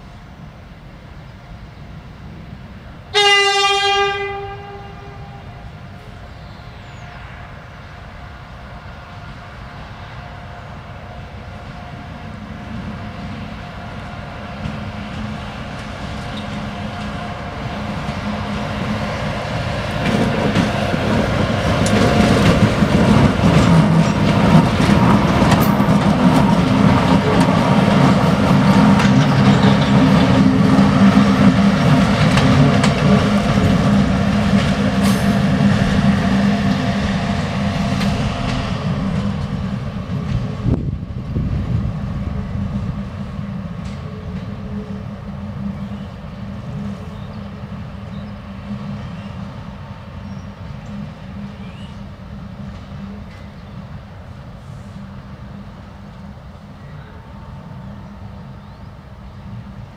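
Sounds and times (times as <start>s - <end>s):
diesel locomotive engine drone: 0.0s - 59.9s
train wheel noise: 0.0s - 59.9s
wheels clicking over rail joints: 19.8s - 36.0s.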